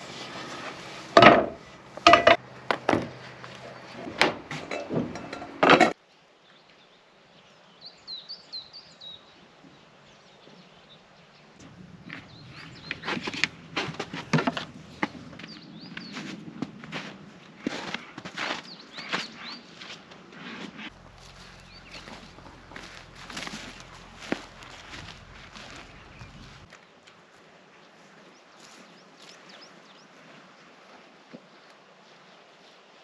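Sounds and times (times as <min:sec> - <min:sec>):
boards and tools clattering: 0:00.0 - 0:06.0, 0:12.6 - 0:15.5
small bird chirping: 0:11.7 - 0:16.2, 0:21.0 - 0:26.7.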